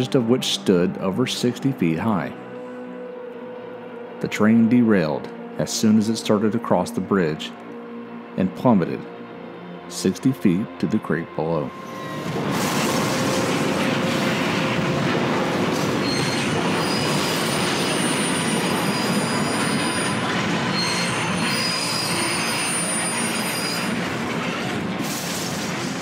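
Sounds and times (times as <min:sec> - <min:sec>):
train rumbling on rails: 0:09.0 - 0:26.0
wheels squealing against rails: 0:11.5 - 0:26.0.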